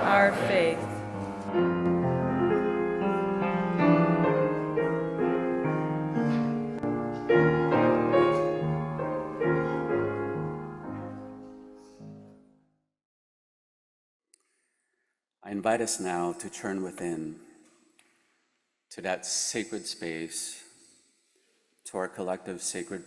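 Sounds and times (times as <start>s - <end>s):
piano playing slow chords: 0.0s - 12.5s.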